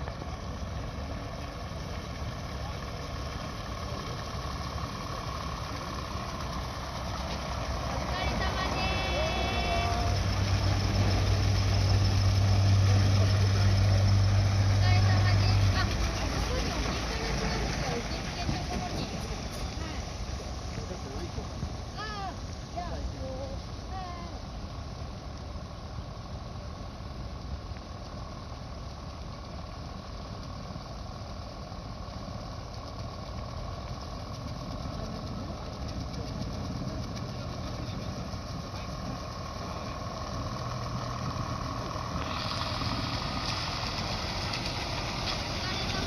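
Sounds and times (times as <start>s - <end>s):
truck engines running low: 0.0s - 46.0s
hiss: 42.2s - 45.6s.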